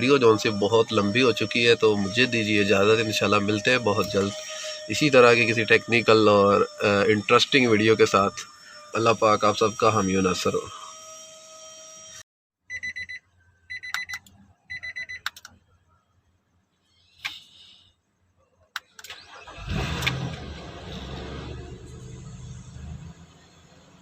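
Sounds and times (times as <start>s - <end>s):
clicks: 15.2s - 15.6s
car engine cranking and running: 19.0s - 24.0s.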